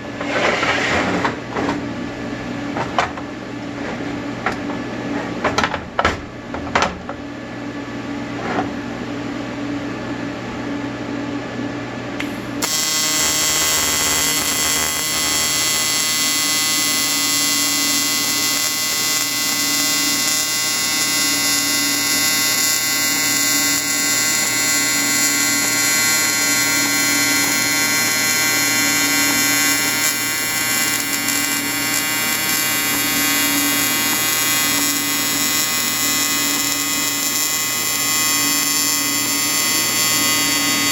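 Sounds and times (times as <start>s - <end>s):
welding arc buzzing: 12.2s - 40.9s.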